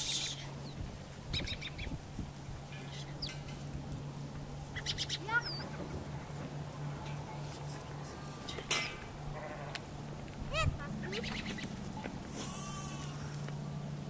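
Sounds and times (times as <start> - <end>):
bird squawks and chirps: 0.0 - 0.5
steady low hum: 0.0 - 14.0.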